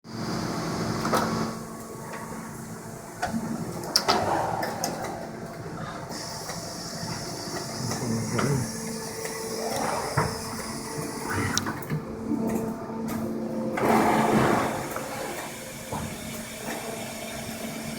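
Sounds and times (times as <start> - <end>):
machine humming: 2.3 - 14.0.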